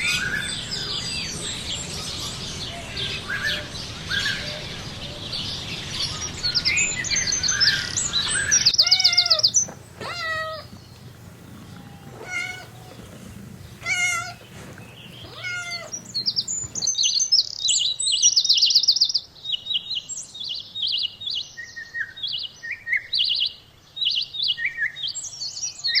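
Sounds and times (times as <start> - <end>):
small birds chirping: 0.0 - 26.0
high bird chirps and trills: 5.5 - 19.2
cat meowing: 8.6 - 16.8.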